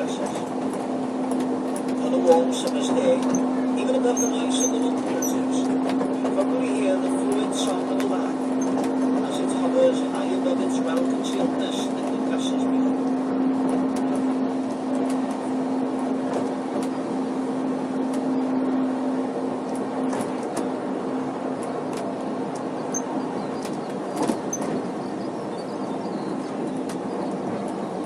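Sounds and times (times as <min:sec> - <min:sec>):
train running noise: 0:00.0 - 0:28.0.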